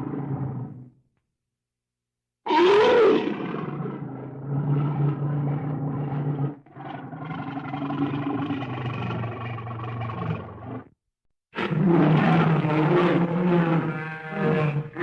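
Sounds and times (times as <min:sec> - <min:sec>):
bear roaring: 0:02.5 - 0:10.9.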